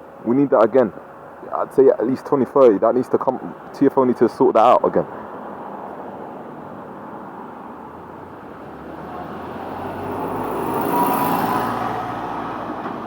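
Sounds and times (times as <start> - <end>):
road vehicle passing: 5.0 - 13.0.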